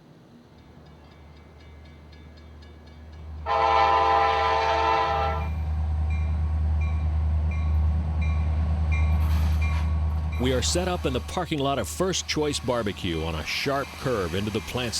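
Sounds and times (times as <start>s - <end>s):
locomotive engine rumble: 1.0s - 14.9s
locomotive air horn blast: 3.4s - 5.6s.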